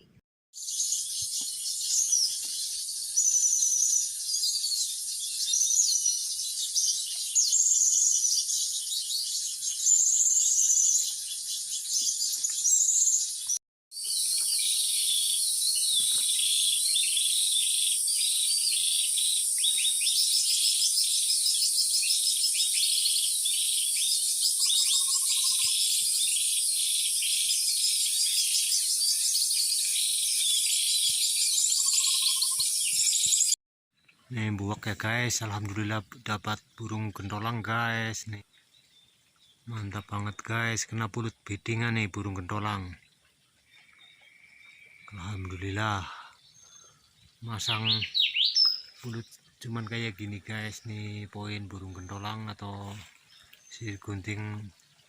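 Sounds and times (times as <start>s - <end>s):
bird calls: 0.0s - 55.0s
insect chorus: 14.0s - 33.4s.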